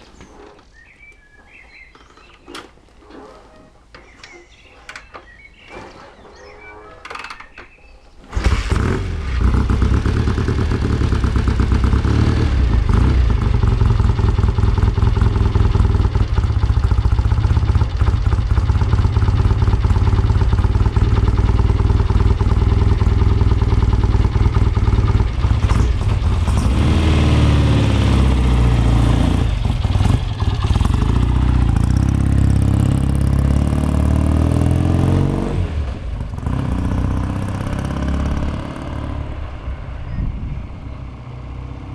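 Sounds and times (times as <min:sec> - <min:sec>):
motorcycle engine running: 0:08.4 - 0:39.4.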